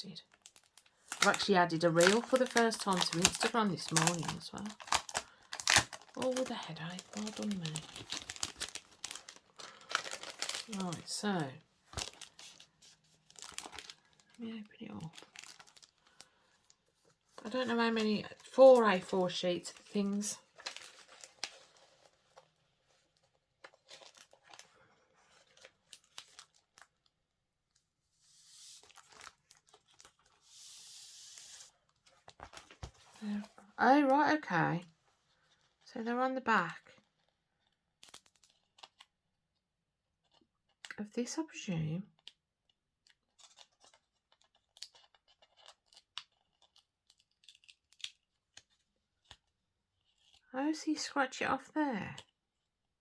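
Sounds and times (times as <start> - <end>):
packet rustling: 0.2 - 27.1, 28.3 - 33.6, 43.1 - 49.4
packet tearing: 0.4 - 14.3, 15.0 - 16.4, 17.8 - 22.0, 28.6 - 31.7, 43.3 - 48.8.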